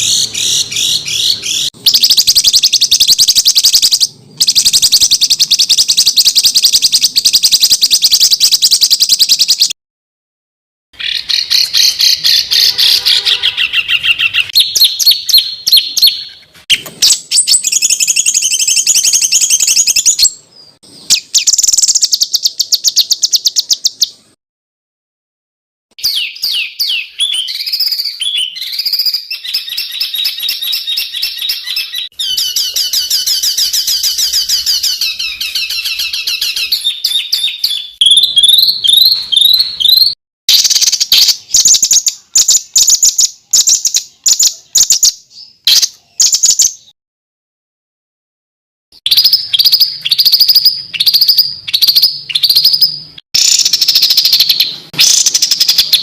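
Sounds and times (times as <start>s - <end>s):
songbird trills: 11.0s - 24.3s, 26.0s - 46.9s, 49.1s - 56.0s.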